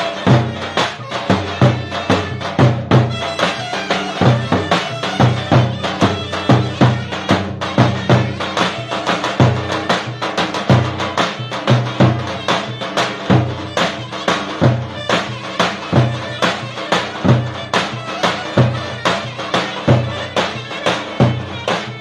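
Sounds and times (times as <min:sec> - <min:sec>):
bass drum beat: 0:00.0 - 0:09.9
shrill reed wind instrument melody: 0:00.0 - 0:22.0.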